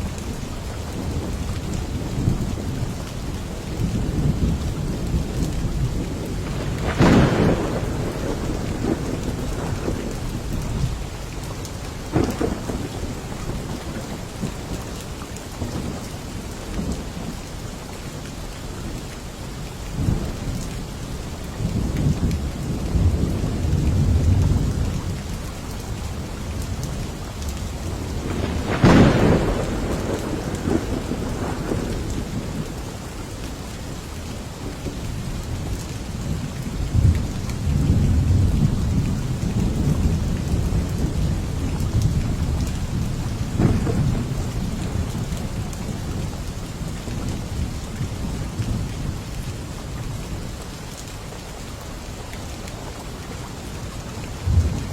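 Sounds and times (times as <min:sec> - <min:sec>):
steady rain falling: 0:00.0 - 0:54.9
low rumbling thunder: 0:00.2 - 0:15.0, 0:21.5 - 0:33.4, 0:34.7 - 0:50.5, 0:54.1 - 0:54.9
sharp thunderclap: 0:06.0 - 0:10.9, 0:12.1 - 0:14.0, 0:27.8 - 0:32.8, 0:36.9 - 0:45.3, 0:54.4 - 0:54.9.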